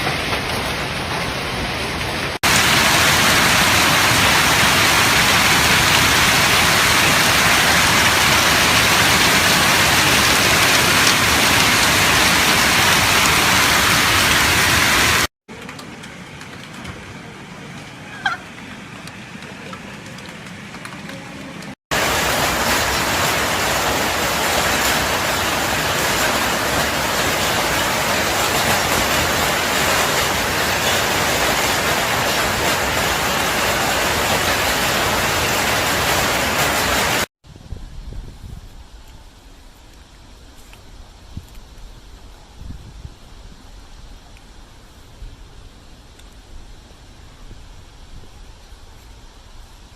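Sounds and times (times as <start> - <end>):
heavy rain pouring: 0.0 - 37.3.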